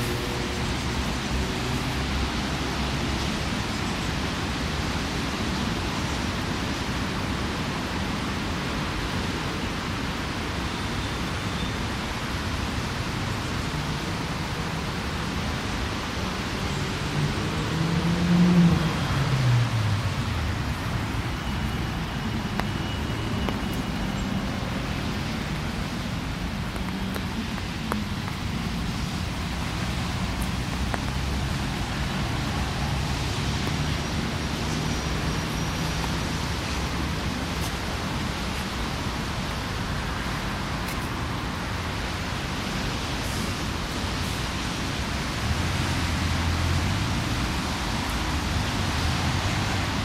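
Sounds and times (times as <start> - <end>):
road traffic: 0.0 - 50.0
passing vehicle engine: 16.9 - 22.2.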